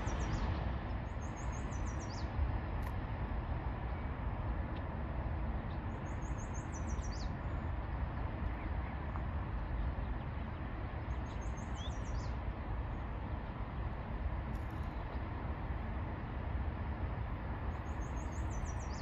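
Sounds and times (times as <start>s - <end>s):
songbird singing: 0.0s - 0.5s, 1.1s - 2.4s, 5.6s - 7.6s, 9.7s - 13.0s, 17.7s - 19.0s
steady low rumble: 0.0s - 19.0s.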